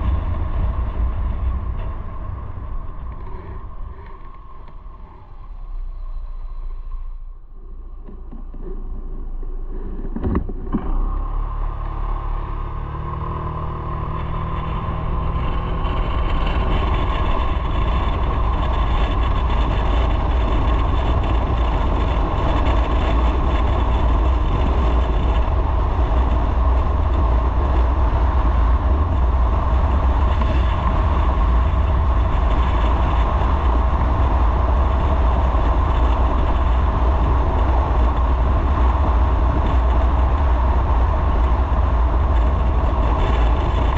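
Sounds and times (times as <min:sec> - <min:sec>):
road noise: 0:00.0 - 0:43.9
motorcycle engine pulling away: 0:10.5 - 0:43.9.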